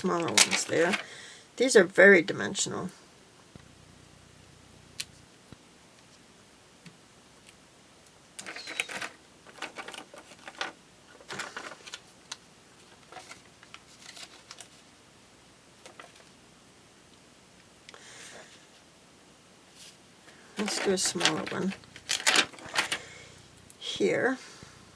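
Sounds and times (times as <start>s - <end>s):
paper rustling and tapping: 0.0s - 1.1s, 8.4s - 14.8s, 15.8s - 16.4s, 20.6s - 23.1s.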